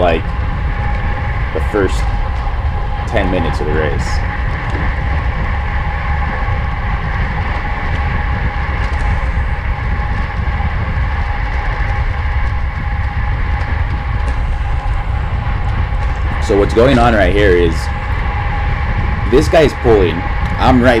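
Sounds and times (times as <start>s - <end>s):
bicycle tyres and drivetrain hum: 0.0s - 21.0s
wind buffeting microphone: 0.0s - 21.0s.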